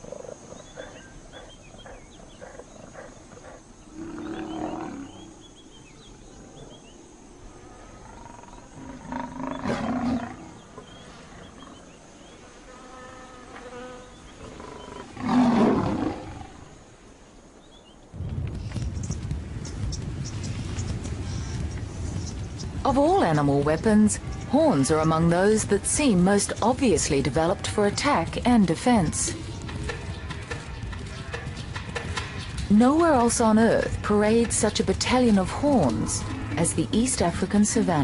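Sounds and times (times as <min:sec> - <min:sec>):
lion growling and snarling: 0:08.0 - 0:11.8.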